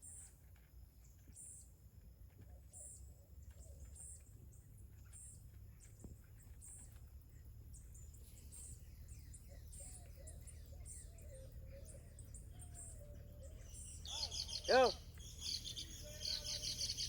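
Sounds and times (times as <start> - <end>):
birds chirping: 5.0 - 17.0
wavering lower bird call: 12.9 - 17.0.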